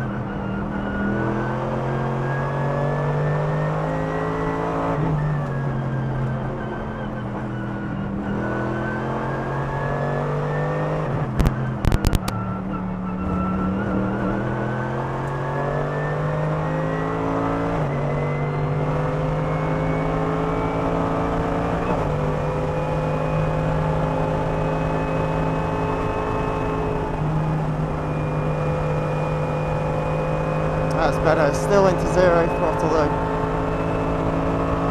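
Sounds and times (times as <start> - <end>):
race car engine at full throttle: 0.0 - 34.9.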